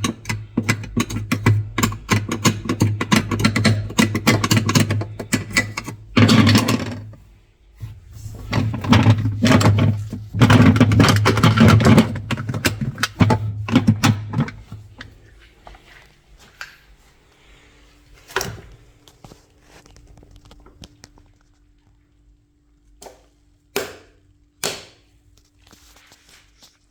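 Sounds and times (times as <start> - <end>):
knocks and clatters: 0.0 - 7.2, 8.4 - 15.1.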